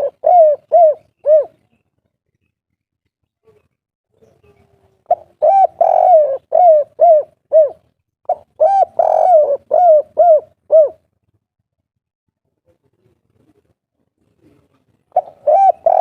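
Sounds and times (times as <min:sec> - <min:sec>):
dove cooing: 0:00.0 - 0:01.7, 0:04.4 - 0:11.1, 0:14.4 - 0:16.0.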